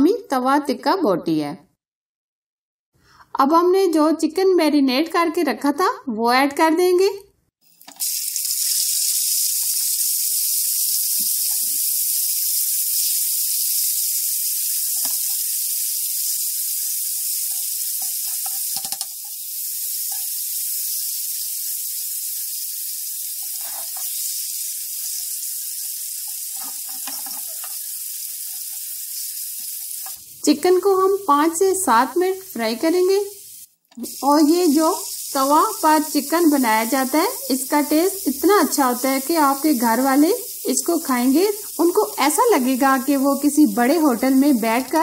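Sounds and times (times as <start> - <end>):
chicken sizzling in hot oil: 7.6 - 45.0
metal spatula scraping and clinking: 26.5 - 27.8.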